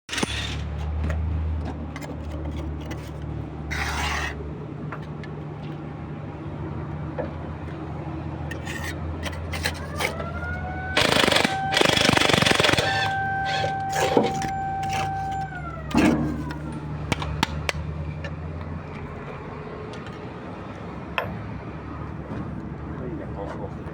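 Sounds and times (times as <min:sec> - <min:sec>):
heavy machine engine running: 0:09.2 - 0:18.4
sharp metal clicks: 0:11.0 - 0:13.2
steady whine: 0:11.0 - 0:17.2.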